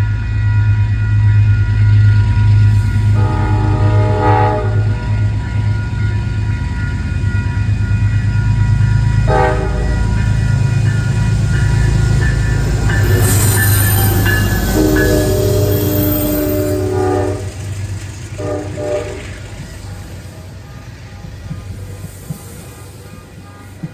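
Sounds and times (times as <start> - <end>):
diesel train engine rumbling: 0.0 - 23.9
train horn: 2.7 - 5.3, 9.2 - 10.4, 11.6 - 19.7.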